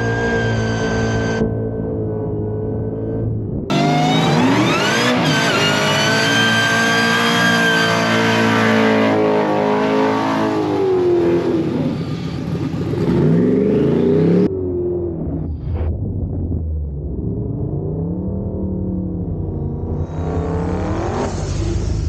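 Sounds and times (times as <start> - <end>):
car engine at full throttle: 0.0 - 22.0.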